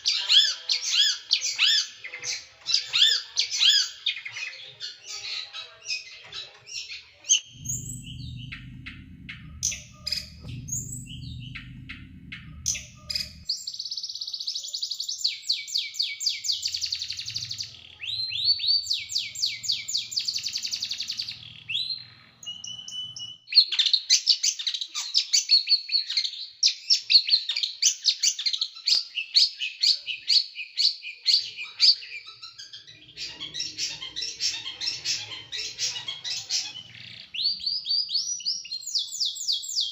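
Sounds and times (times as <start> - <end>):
small songbird rapid chirping: 0.0 - 39.9.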